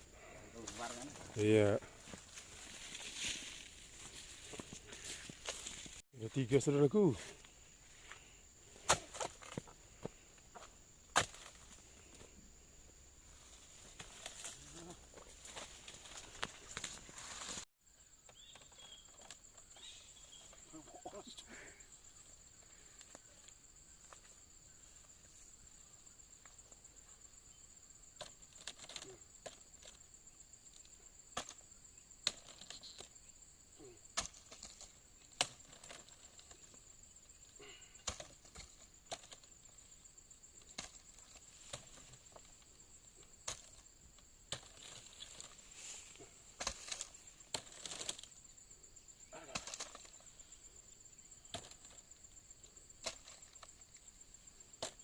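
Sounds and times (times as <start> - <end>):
blade chopping stalks: 46.6 - 48.2.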